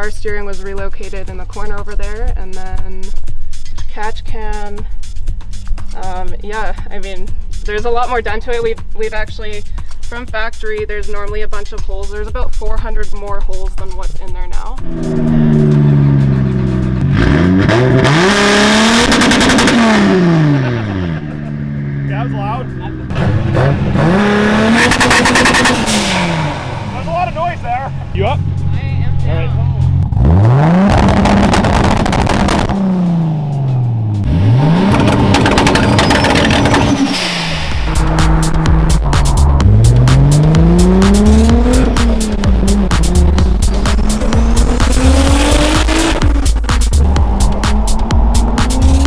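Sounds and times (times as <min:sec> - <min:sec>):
turbocharged engine revving: 0:13.0 - 0:49.0.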